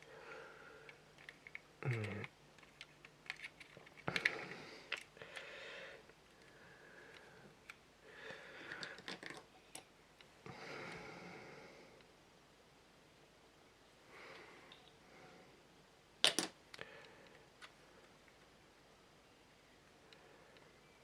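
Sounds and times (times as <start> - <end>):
plastic parts clicking and tapping: 0.9 - 4.3, 8.6 - 9.9.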